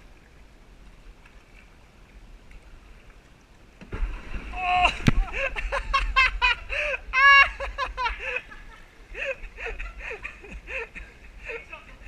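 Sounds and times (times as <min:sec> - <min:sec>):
person laughing hard: 0:04.6 - 0:11.7.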